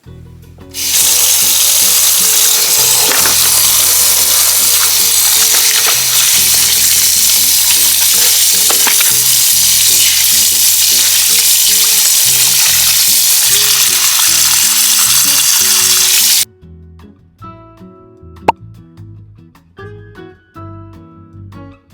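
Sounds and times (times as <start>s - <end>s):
meat sizzling in hot oil: 0.8s - 16.5s
background music: 16.5s - 21.9s.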